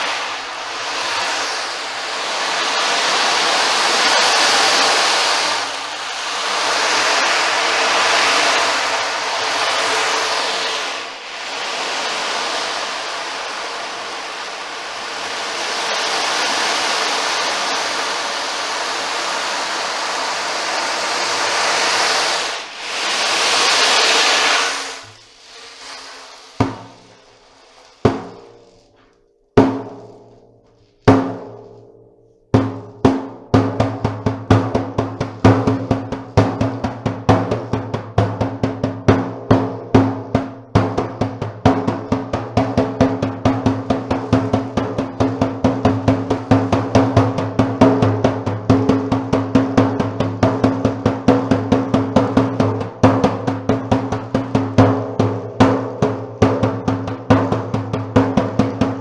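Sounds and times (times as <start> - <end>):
ocean drum beads rolling: 0.0 - 29.2
drumhead strikes: 0.0 - 59.0.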